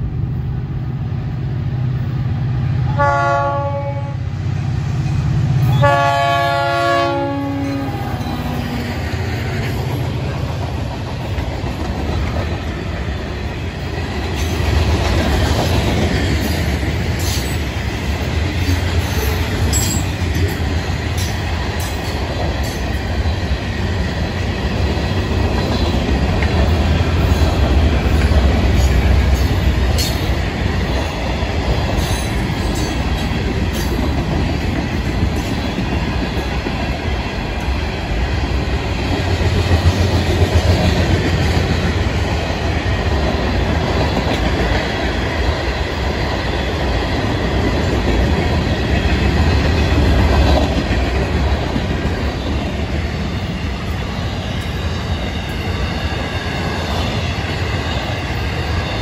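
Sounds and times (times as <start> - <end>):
freight cars rumbling on rails: 0.0 - 59.0.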